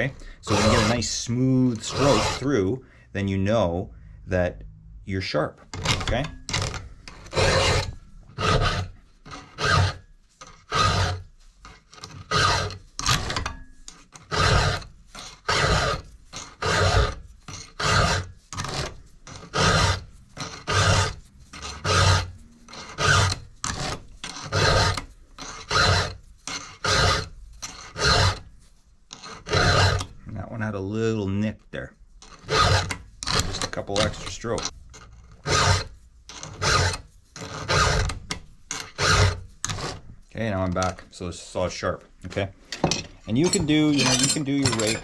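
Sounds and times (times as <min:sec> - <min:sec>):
file rasping on chainsaw chain: 0:00.0 - 0:02.7, 0:05.8 - 0:28.5, 0:29.1 - 0:30.2, 0:32.2 - 0:40.0, 0:43.3 - 0:45.0.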